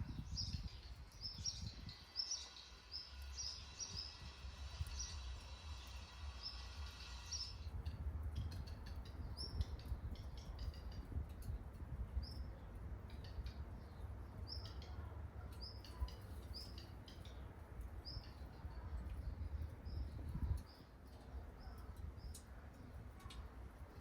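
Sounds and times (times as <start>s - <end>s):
small bird chirping: 0.0s - 11.6s.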